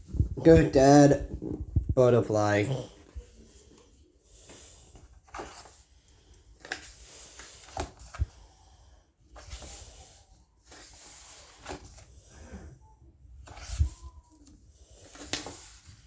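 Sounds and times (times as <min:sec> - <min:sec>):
paper rustling: 0:04.9 - 0:08.3, 0:09.3 - 0:12.1, 0:13.4 - 0:16.0.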